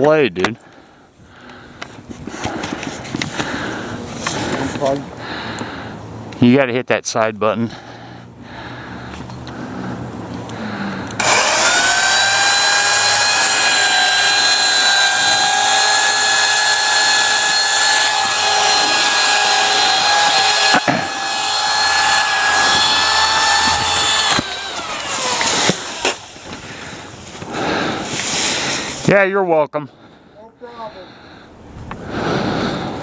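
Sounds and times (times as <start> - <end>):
electric saw cutting wood: 11.1 - 29.0.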